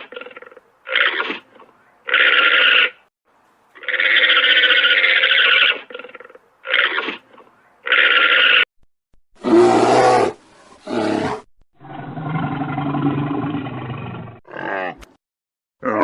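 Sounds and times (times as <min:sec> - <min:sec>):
lion roaring and growling: 0:09.4 - 0:15.1.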